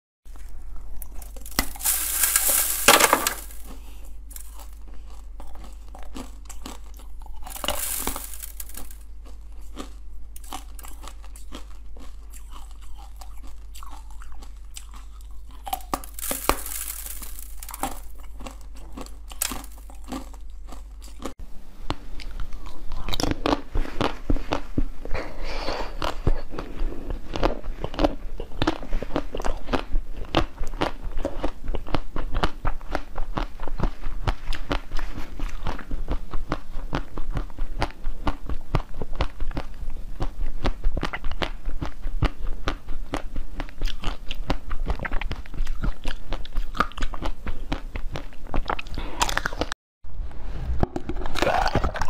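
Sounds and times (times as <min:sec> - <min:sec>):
wet chewing clicks: 0:03.6 - 0:49.8
loud bites into jelly: 0:50.8 - 0:52.0.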